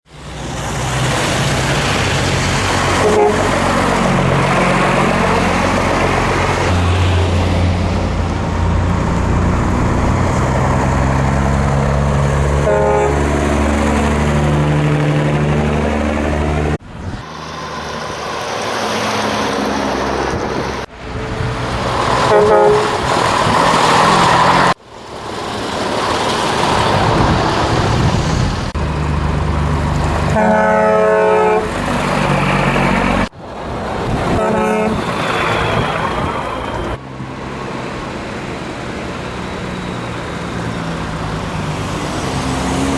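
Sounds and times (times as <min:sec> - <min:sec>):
truck horn blasts: 0:03.0 - 0:03.6, 0:12.6 - 0:13.3, 0:22.2 - 0:23.0, 0:30.3 - 0:31.7, 0:34.3 - 0:35.0.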